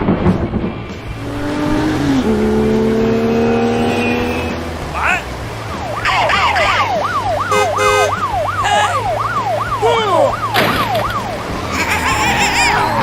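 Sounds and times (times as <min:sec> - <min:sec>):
siren yelping: 0:05.0 - 0:13.0
sudden thump: 0:10.5 - 0:11.2.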